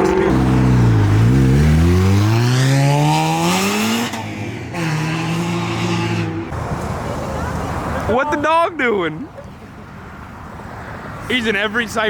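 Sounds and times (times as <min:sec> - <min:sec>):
car engine revving: 0:00.0 - 0:06.6.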